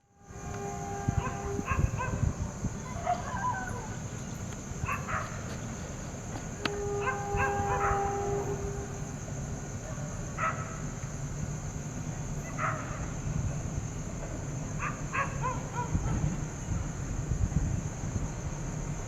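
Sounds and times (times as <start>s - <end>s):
steady horn tone: 0.0s - 2.6s, 6.5s - 9.5s
dogs barking: 1.2s - 3.9s, 4.8s - 5.5s, 6.9s - 8.2s, 10.4s - 10.8s, 12.5s - 13.1s, 14.8s - 16.2s.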